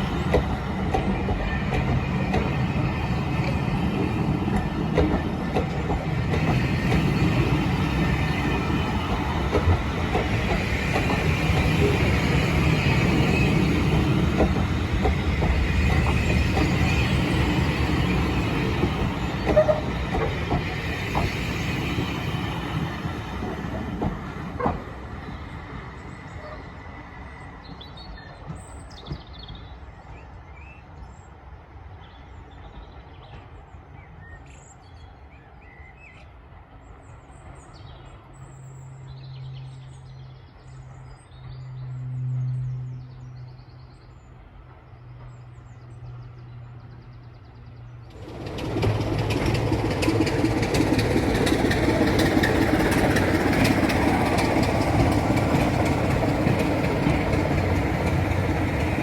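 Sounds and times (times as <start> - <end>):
railway locomotive: 0.0 - 59.0
birds chirping: 32.0 - 59.0.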